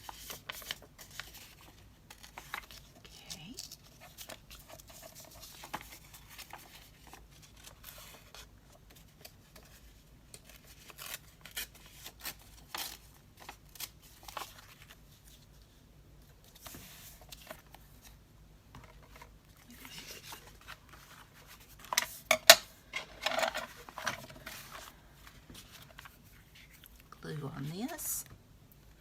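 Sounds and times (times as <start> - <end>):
paper rustling: 0.0 - 22.2, 22.9 - 28.1.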